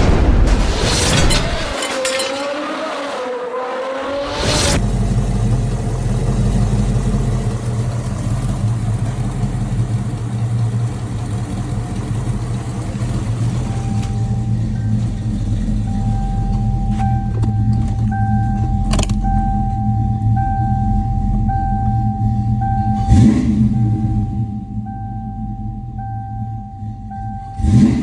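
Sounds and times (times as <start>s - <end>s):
car engine idling: 4.8s - 27.9s.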